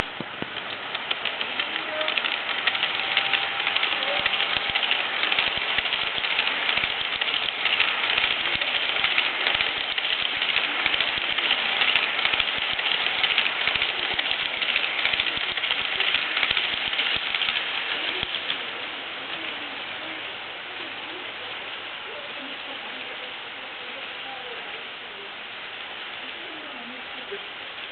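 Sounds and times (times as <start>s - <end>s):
model train wheels clicking on track: 0.0s - 20.3s.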